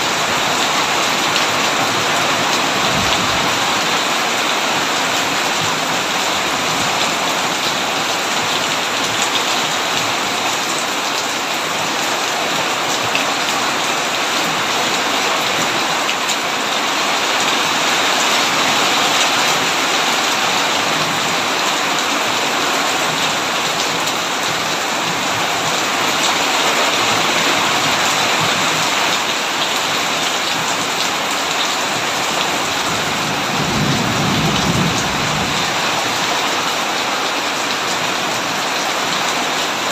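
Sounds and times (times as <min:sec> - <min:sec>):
heavy rain on a tin roof: 0:00.0 - 0:39.9
thunder rumbling: 0:02.5 - 0:04.3, 0:32.9 - 0:36.3.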